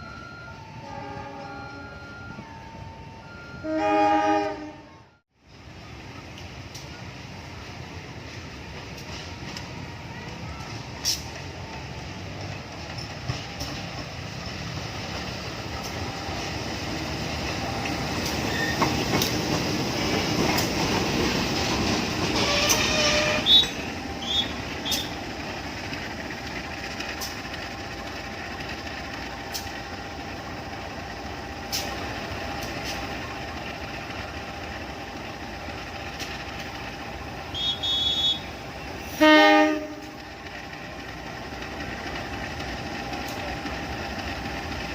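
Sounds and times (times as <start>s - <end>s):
loud train horn blast: 0.8s - 1.8s, 3.6s - 4.9s, 22.4s - 25.2s, 37.5s - 40.2s
train horn toots: 0.8s - 2.0s, 3.6s - 5.1s, 22.4s - 25.2s, 37.5s - 40.2s
train wheels clicking over rail joints: 8.2s - 44.9s.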